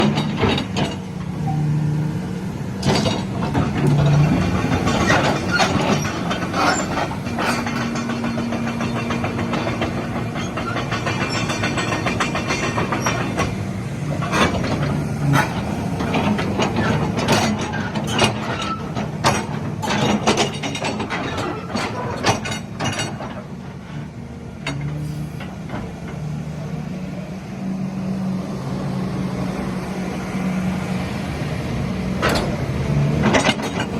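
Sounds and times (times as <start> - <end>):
metallic knocks and clanks: 0.0 - 1.6, 2.8 - 26.2, 32.1 - 33.9
excavator diesel engine running: 0.0 - 33.9.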